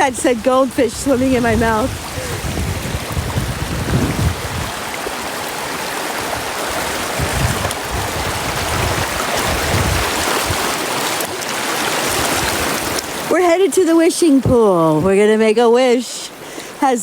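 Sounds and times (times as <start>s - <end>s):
brook water rushing and splashing: 0.0s - 17.0s
low thuds: 0.9s - 4.8s.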